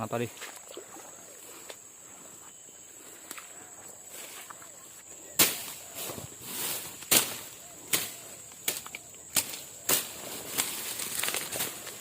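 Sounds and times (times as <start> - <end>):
footsteps through dry vegetation: 0.2 - 12.0
twigs snapping and crackling: 7.0 - 12.0.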